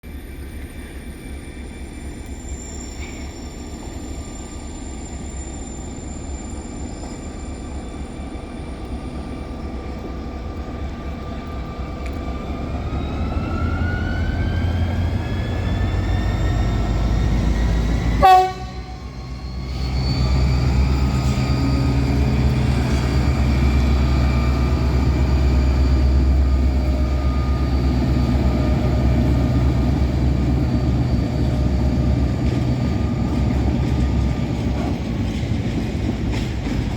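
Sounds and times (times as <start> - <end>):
diesel locomotive engine rumble: 0.0 - 36.9
loud horn blast with falling pitch: 18.2 - 19.2.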